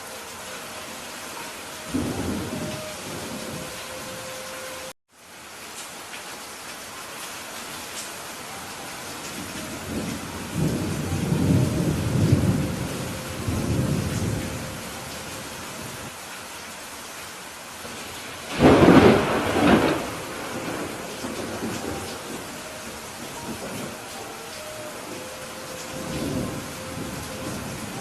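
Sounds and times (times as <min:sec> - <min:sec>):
steady rain: 0:00.0 - 0:28.0
low rumble of thunder: 0:01.9 - 0:03.9, 0:09.4 - 0:15.1, 0:18.5 - 0:24.0, 0:25.8 - 0:28.0
sharp thunderclap: 0:18.5 - 0:22.4.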